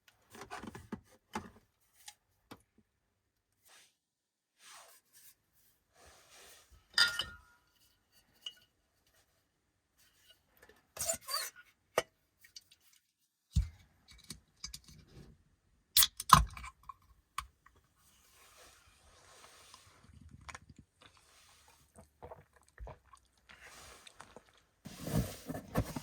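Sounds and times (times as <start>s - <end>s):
dishes and utensils clinking: 7.0s - 7.6s.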